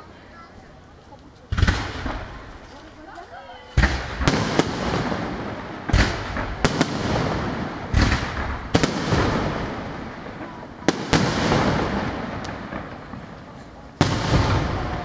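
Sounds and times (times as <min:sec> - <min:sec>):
firework bangs with echo: 0:01.5 - 0:02.6, 0:03.7 - 0:15.0.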